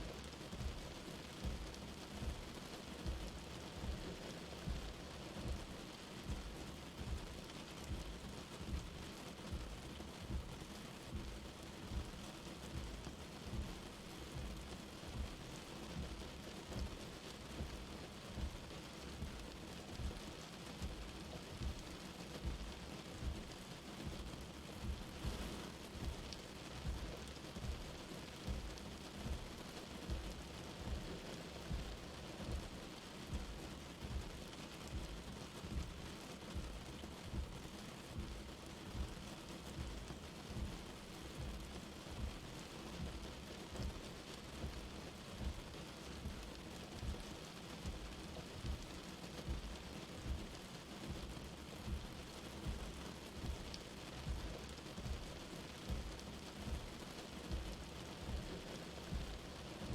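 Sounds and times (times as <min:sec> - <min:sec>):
light rain hissing: 0:00.0 - 0:59.9.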